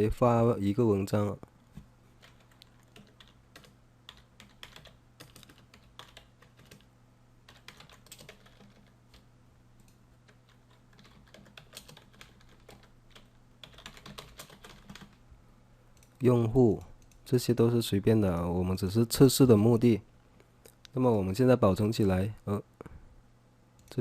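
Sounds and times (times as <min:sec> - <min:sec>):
faint steady hum: 0:00.0 - 0:24.0
typing on computer keyboard: 0:02.2 - 0:06.9, 0:07.5 - 0:09.2, 0:09.8 - 0:15.2.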